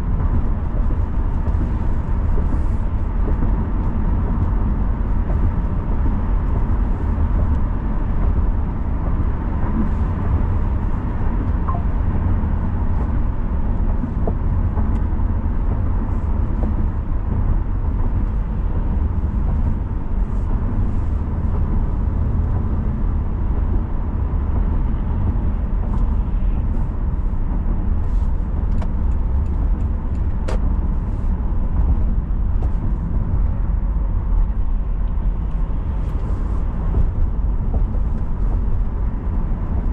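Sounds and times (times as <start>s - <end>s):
car engine and tyre rumble: 0.0s - 39.9s
faint steady whine: 5.5s - 13.3s.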